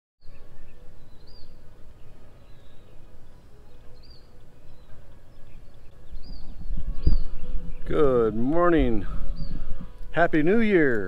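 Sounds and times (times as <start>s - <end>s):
bird chirping: 0.2s - 11.0s
wind on the microphone: 5.9s - 11.0s.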